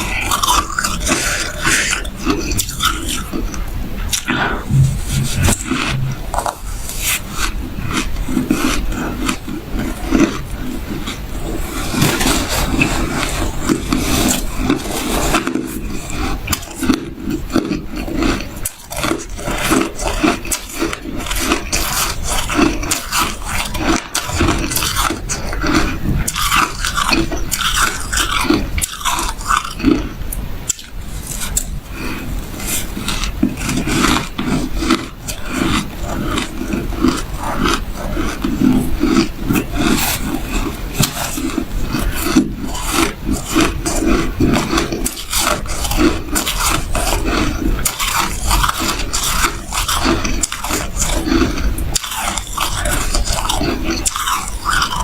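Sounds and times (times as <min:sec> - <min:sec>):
shaved ice crunching: 0:33.0 - 0:55.0.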